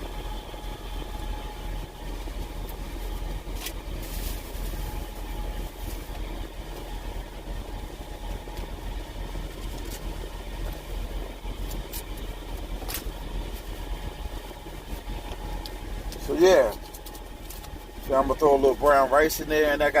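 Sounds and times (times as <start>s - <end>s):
diesel truck engine idling: 0.0s - 20.0s
clicks and rustles of handling: 14.9s - 18.0s.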